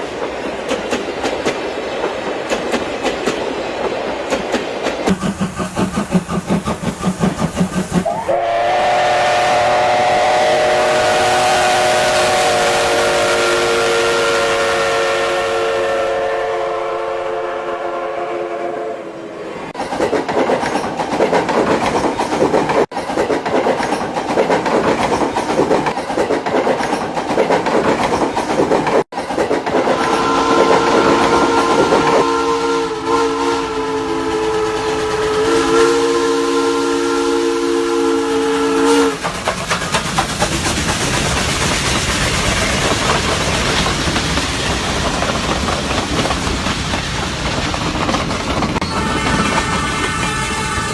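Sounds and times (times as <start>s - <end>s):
train wheels rumbling and clattering: 0.0s - 13.3s, 19.6s - 32.3s, 32.9s - 36.2s, 38.0s - 50.9s
train horn chord: 8.1s - 19.3s, 29.9s - 39.2s, 48.8s - 50.9s.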